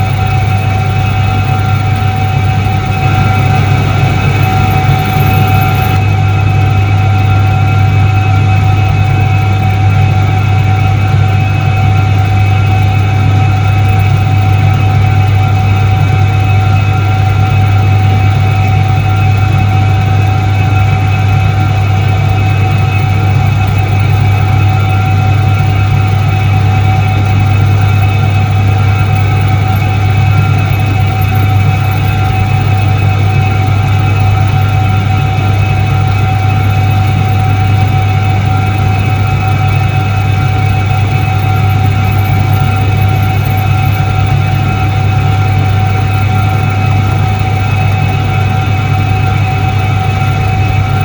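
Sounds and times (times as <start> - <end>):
washing machine motor humming: 0.0 - 7.9, 24.0 - 51.0.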